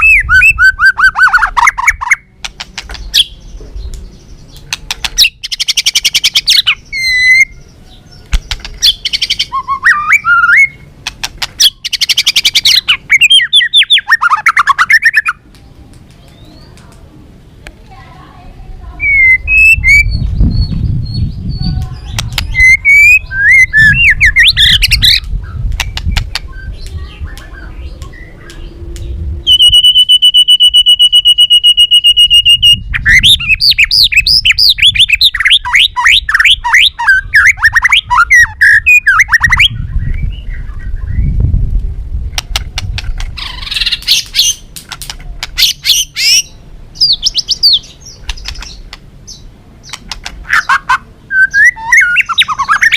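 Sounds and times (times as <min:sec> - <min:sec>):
bird singing whistled phrases: 0:00.0 - 0:02.2, 0:05.2 - 0:08.2, 0:08.8 - 0:10.8, 0:11.6 - 0:15.4, 0:19.0 - 0:41.4, 0:45.6 - 0:49.4, 0:50.5 - 0:52.9.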